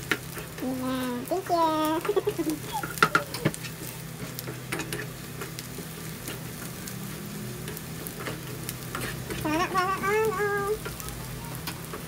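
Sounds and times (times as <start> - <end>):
garlic sizzling in oil: 0.0 - 12.0
spatula scraping and tapping wok: 1.4 - 6.8, 7.6 - 9.7.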